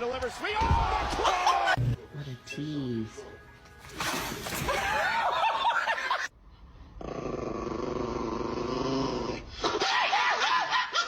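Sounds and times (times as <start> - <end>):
dog growling: 7.0 - 9.5.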